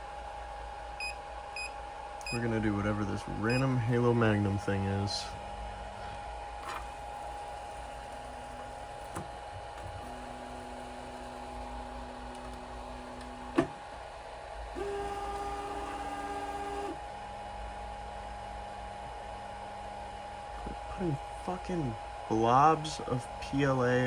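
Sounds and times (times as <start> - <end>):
printer fan tone: 0.0 - 24.0
stepper motors whining: 14.8 - 17.0.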